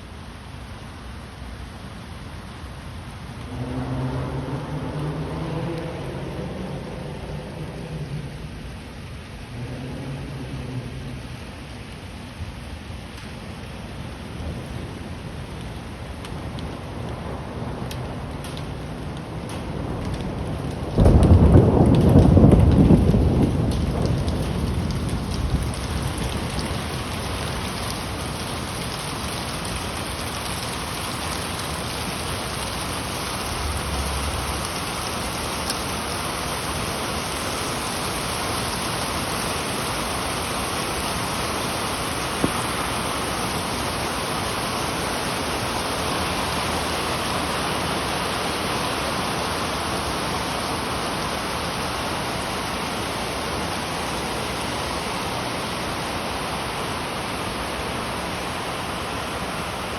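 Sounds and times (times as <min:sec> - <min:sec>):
heavy rain on city surfaces: 0:00.0 - 0:59.9
thunder crack and rumble: 0:03.4 - 0:11.8, 0:14.3 - 0:39.7, 0:41.8 - 0:47.5.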